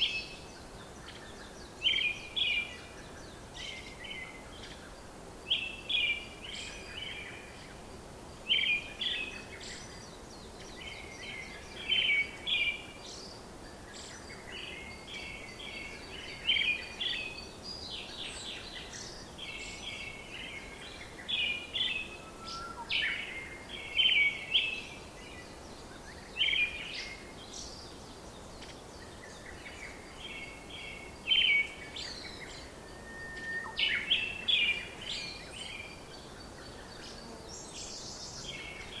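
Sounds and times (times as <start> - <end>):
faint steady hiss: 0.0 - 39.0
bird chirping: 8.4 - 39.0.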